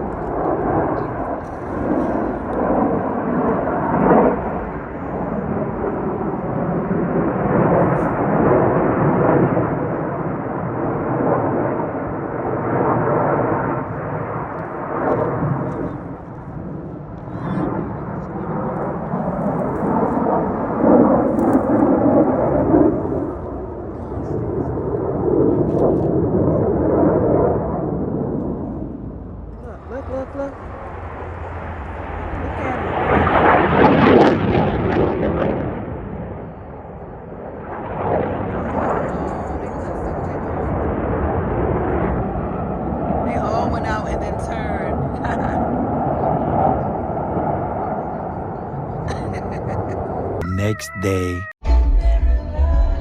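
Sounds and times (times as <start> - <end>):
people talking: 29.6 - 30.6, 32.4 - 33.0, 38.6 - 40.7, 43.3 - 45.6, 49.1 - 51.5.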